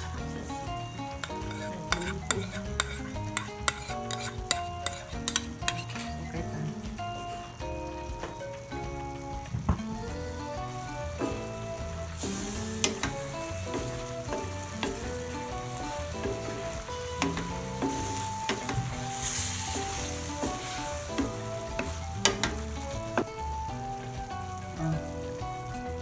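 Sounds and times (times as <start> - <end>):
food sizzling in a pan: 0.0 - 26.0
spatula knocking against pan: 1.2 - 5.8, 12.8 - 15.2, 16.2 - 19.0
wooden spatula scraping: 1.2 - 6.2.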